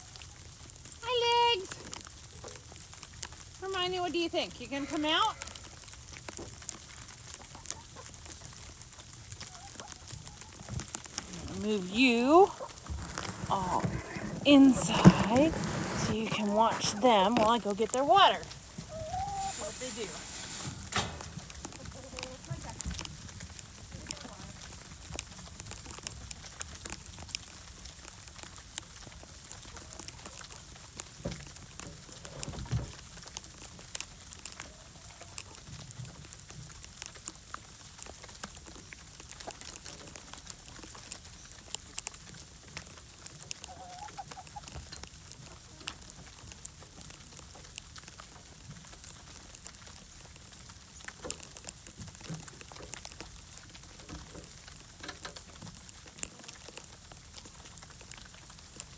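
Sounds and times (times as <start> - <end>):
patter of fine ticks: 0.0 - 58.9
hens clucking softly: 18.4 - 23.3, 43.4 - 45.9.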